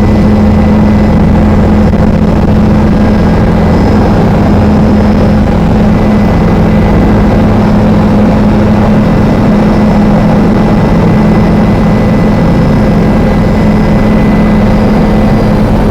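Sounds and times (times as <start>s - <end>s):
helicopter engine and rotors: 0.0s - 15.9s.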